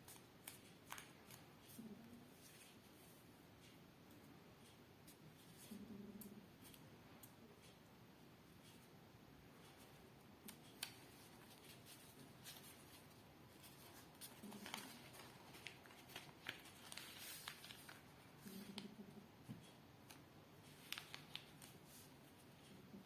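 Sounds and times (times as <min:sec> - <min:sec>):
paper crackling being folded: 0:00.0 - 0:03.2, 0:09.6 - 0:19.0, 0:19.6 - 0:23.0.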